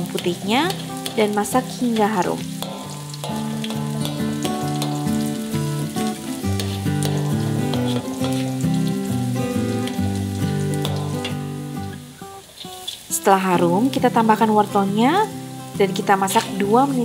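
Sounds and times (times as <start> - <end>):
plucked background melody: 0.0 - 12.4
metal spatula scraping a wok: 0.0 - 13.1
food sizzling in hot oil: 0.0 - 17.0.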